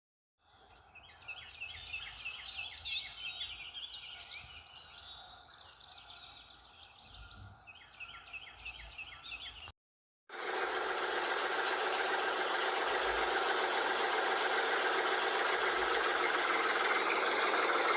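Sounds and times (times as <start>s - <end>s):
small birds chirping: 0.4s - 9.7s
small motor starting: 10.3s - 17.9s.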